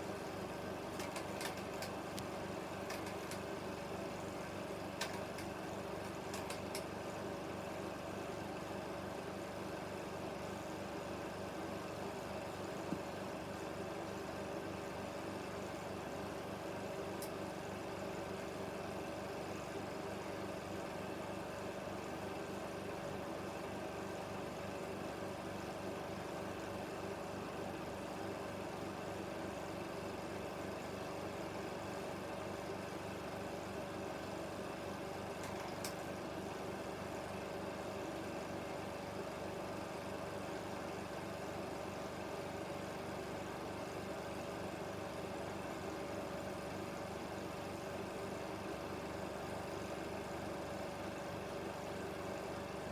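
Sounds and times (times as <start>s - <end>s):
constant hum: 0.0s - 6.9s
film projector whirring: 0.0s - 52.9s
film mechanism clatter: 0.9s - 2.0s, 2.8s - 3.4s.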